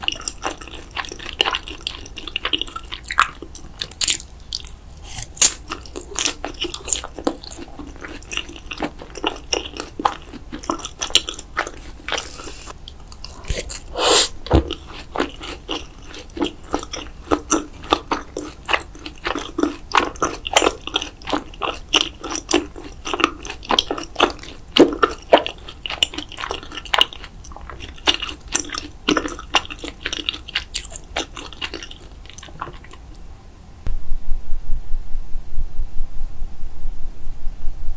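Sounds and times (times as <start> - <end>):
person chewing and biting food: 0.0 - 33.2.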